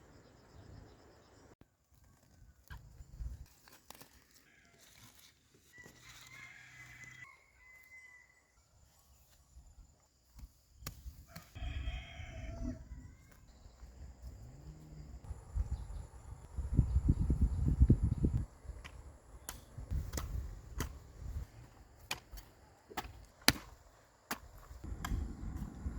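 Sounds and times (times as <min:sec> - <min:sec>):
rooster crowing: 0:05.7 - 0:08.6, 0:11.3 - 0:13.3.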